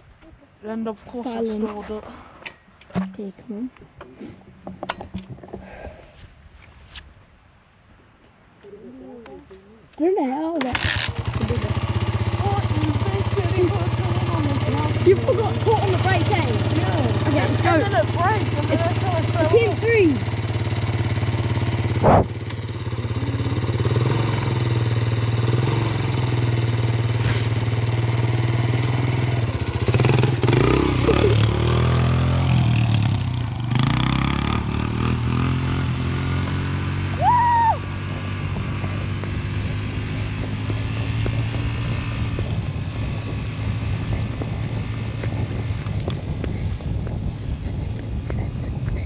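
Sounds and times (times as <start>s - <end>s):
motorcycle engine revving: 10.6s - 49.0s.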